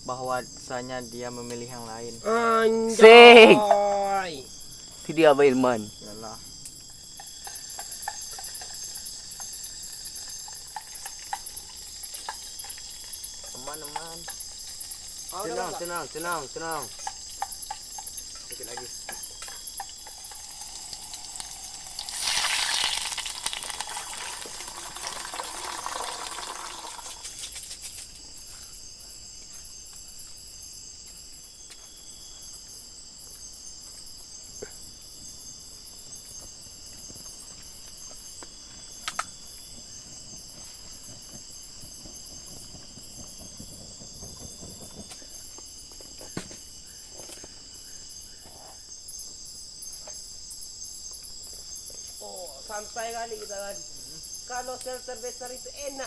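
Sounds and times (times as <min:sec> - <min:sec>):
insects droning: 0:00.0 - 0:56.0
food sizzling in hot oil: 0:06.8 - 0:27.8.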